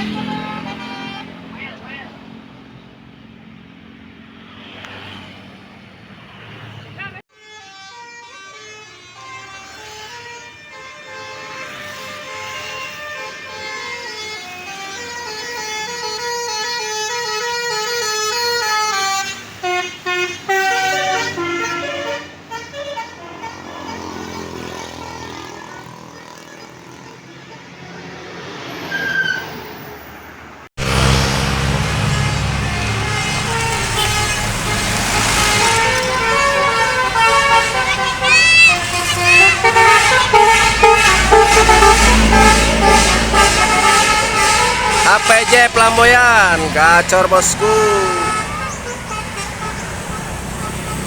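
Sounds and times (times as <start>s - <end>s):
multi-tone bus horn melody: 0.0s - 2.2s, 7.3s - 29.6s, 30.8s - 51.0s.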